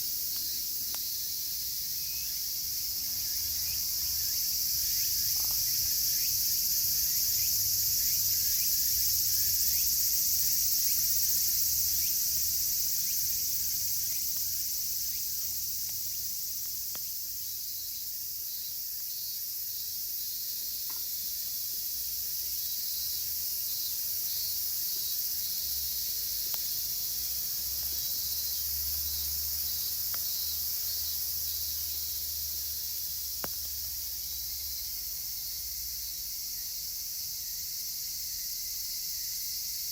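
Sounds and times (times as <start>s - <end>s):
campfire crackling: 0.0s - 3.6s, 11.1s - 34.9s
cicadas chorus: 0.0s - 39.9s.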